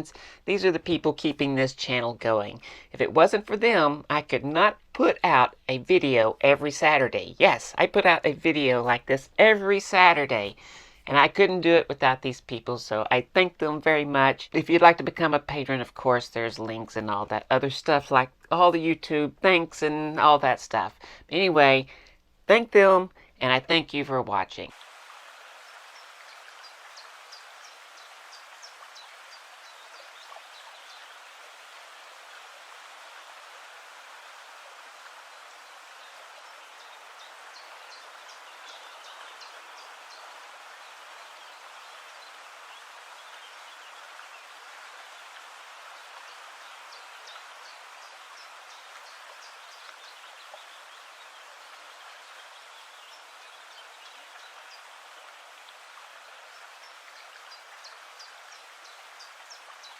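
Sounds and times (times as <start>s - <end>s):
rushing hiss of water or rain: 0.0s - 0.5s, 24.7s - 59.9s
small birds chirping: 24.6s - 59.9s.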